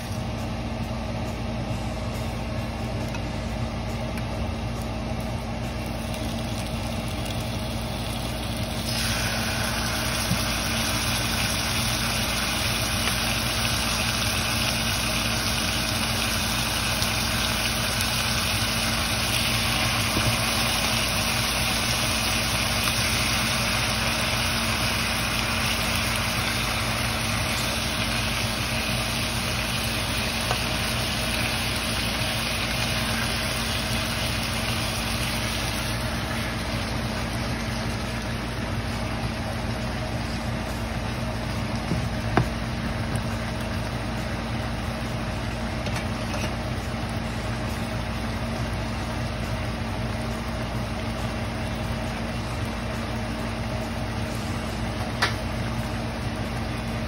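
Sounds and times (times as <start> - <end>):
low machine hum: 0.0 - 57.0
meat sizzling in a frying pan: 5.8 - 41.5.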